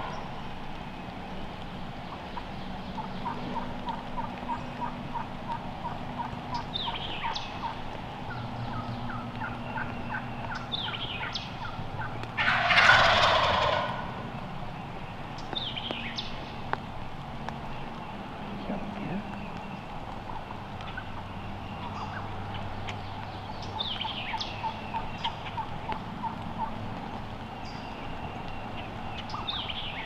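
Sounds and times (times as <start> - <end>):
turkey gobbling: 2.3 - 14.3, 20.1 - 22.6, 23.7 - 26.8
turkey yelps: 8.7 - 14.2.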